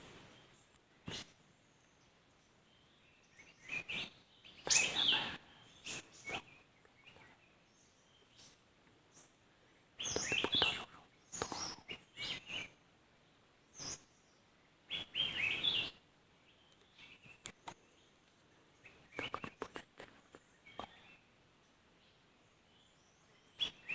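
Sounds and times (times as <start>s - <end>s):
small birds chirping: 0.0s - 23.9s.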